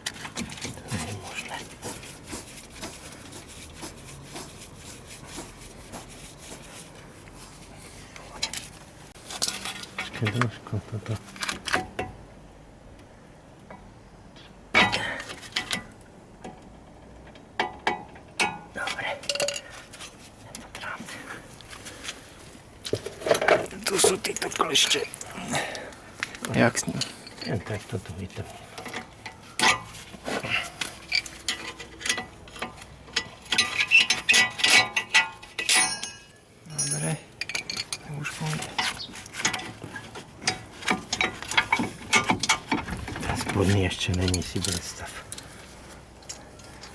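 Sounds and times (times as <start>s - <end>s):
metal tools clanking: 22.9s - 25.9s, 26.6s - 45.4s
metallic clicks and clinks: 34.4s - 38.0s.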